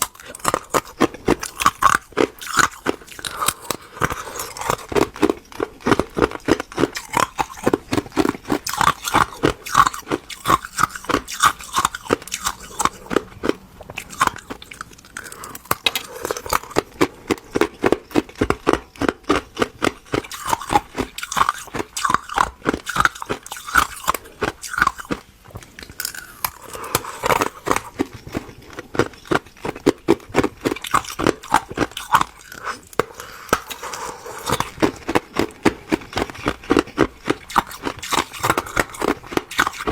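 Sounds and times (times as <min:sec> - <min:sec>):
ice crunching while chewed: 0:00.0 - 0:39.9.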